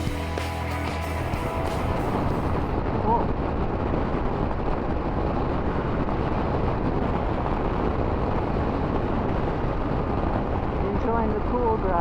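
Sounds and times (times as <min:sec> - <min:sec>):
motorcycle engine: 0:00.0 - 0:02.6
wind rush: 0:00.0 - 0:12.0.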